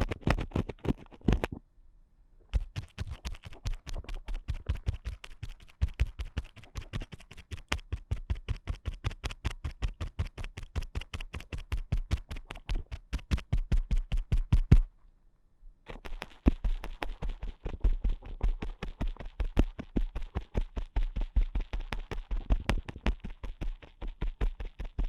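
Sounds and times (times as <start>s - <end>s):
ear pick scratching: 0.0s - 1.6s, 2.5s - 9.1s, 15.9s - 25.0s.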